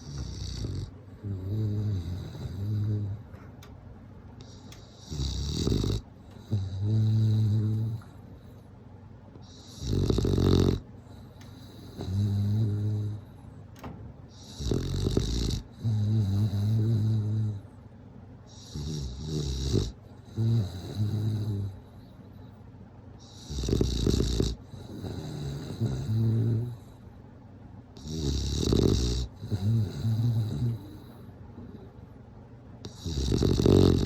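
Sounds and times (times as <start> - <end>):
dog snoring: 0.0 - 3.4, 4.4 - 8.2, 9.4 - 13.5, 14.3 - 17.7, 18.5 - 22.1, 23.2 - 27.1, 28.0 - 32.0, 32.8 - 34.0.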